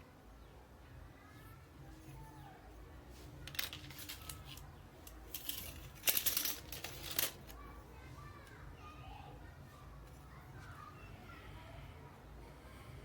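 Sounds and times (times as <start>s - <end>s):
small hard objects clicking: 3.4s - 7.6s.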